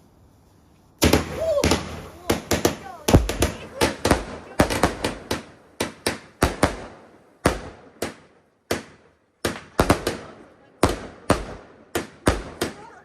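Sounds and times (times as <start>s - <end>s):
fireworks bangs: 1.0s - 13.0s.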